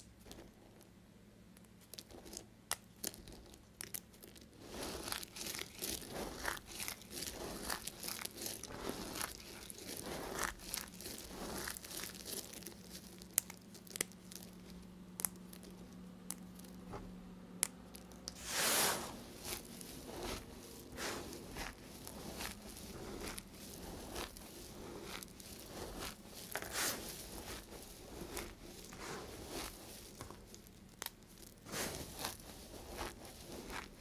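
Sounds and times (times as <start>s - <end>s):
knife cutting soap: 4.5s - 14.1s, 18.3s - 34.0s.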